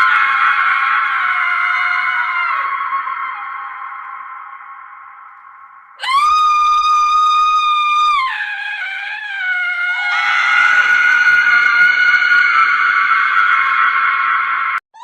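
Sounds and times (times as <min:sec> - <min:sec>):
woman screaming: 0:06.0 - 0:13.7.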